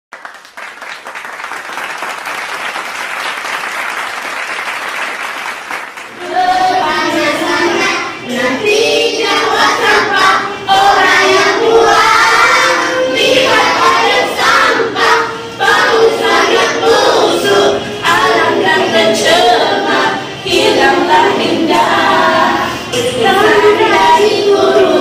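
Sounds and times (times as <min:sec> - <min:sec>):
applause: 0:00.1 - 0:06.2
young children singing: 0:06.1 - 0:25.0.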